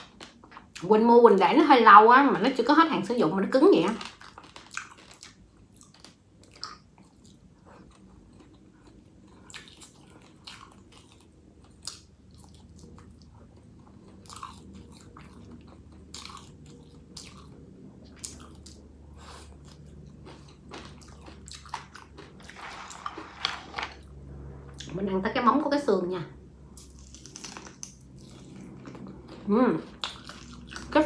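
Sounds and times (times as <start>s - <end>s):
wet chewing and mouth clicks: 4.0s - 23.0s, 26.8s - 31.0s.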